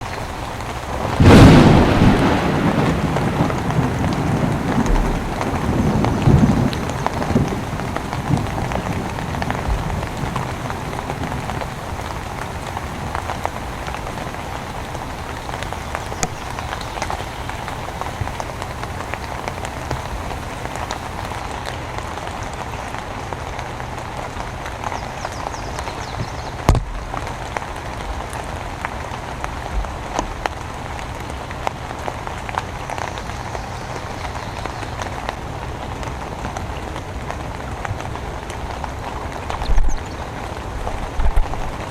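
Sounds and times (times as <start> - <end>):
heavy rain: 0.0 - 41.9
low rumble: 1.0 - 21.1
drops ticking on surfaces: 2.8 - 21.0.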